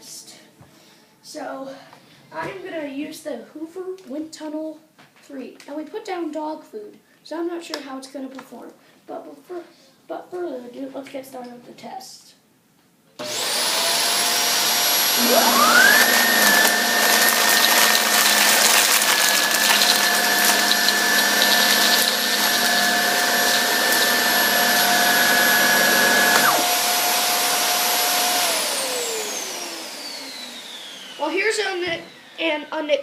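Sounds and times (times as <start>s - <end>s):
upright vacuum running: 13.2s - 32.4s.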